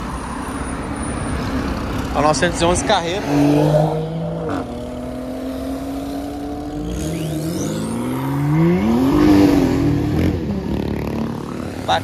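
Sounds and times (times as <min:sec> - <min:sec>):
car engine accelerating: 0:03.0 - 0:11.5.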